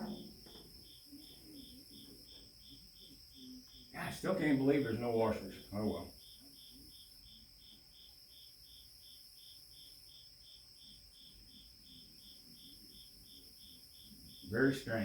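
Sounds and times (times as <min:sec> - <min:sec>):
faint high whine: 0:00.0 - 0:07.9
crickets chirping: 0:00.0 - 0:15.0.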